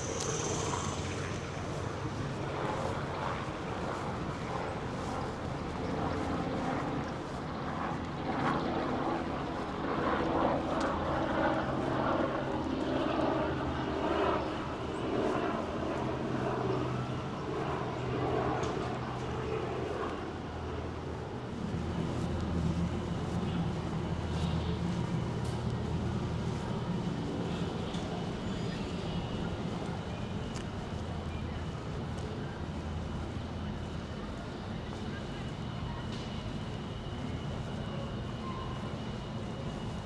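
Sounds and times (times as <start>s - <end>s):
low engine drone: 0.0s - 4.3s
outdoor background sound: 0.0s - 6.8s.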